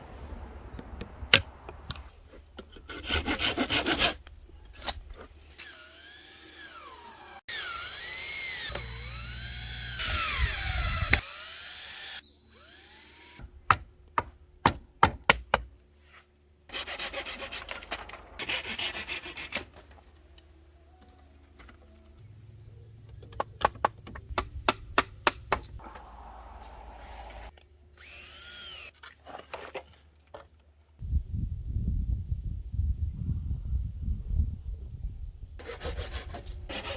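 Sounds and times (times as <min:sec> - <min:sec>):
sawing wood: 0:02.7 - 0:13.4, 0:16.7 - 0:19.8, 0:24.4 - 0:28.9, 0:35.6 - 0:36.9
sounds rising and falling in pitch: 0:25.8 - 0:27.5.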